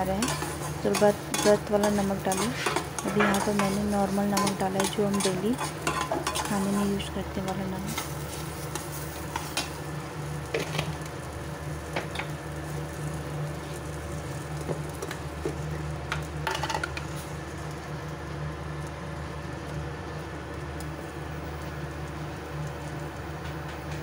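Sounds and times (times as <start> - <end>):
spatula scraping pan: 0.0 - 7.1
steady low hum: 0.0 - 11.8
food sizzling in a pan: 0.0 - 24.0.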